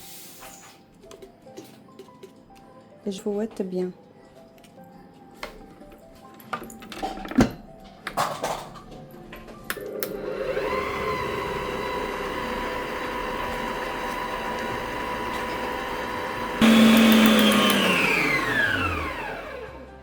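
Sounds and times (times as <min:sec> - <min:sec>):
electric mixer motor whisking: 0:09.7 - 0:20.0.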